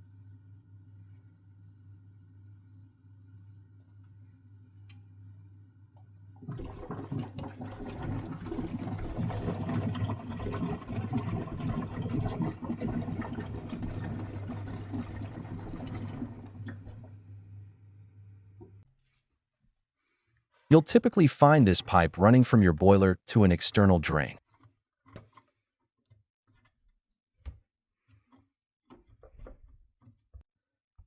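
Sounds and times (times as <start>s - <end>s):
water gushing and splashing: 6.4s - 17.1s.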